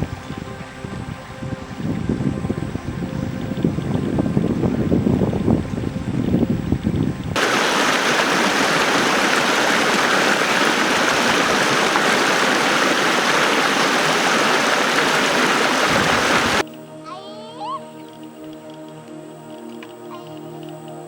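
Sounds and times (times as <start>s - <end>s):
wind rumble on microphone: 0.0s - 16.6s
flowing water rushing: 7.4s - 16.6s.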